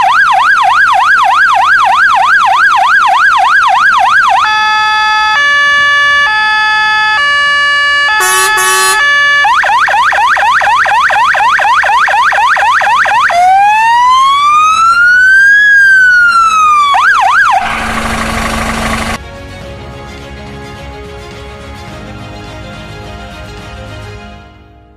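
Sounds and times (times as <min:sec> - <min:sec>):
fire engine siren: 0:00.0 - 0:19.2
rushing noise: 0:17.2 - 0:19.2.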